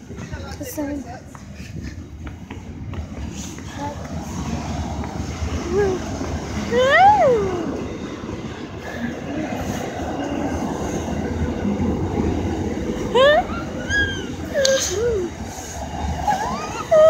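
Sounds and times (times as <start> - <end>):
freight train rumbling past: 2.0 - 17.0
high rising and falling cry: 13.0 - 17.0.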